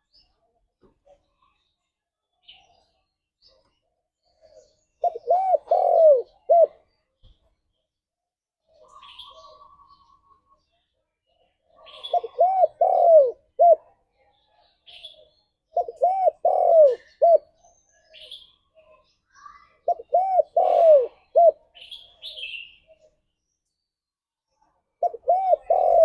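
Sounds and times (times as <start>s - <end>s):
faint high bird chirps: 0.0s - 8.0s, 8.6s - 26.0s
dove cooing: 5.0s - 6.9s, 11.8s - 13.9s, 15.8s - 17.5s, 19.8s - 21.6s, 25.0s - 26.0s.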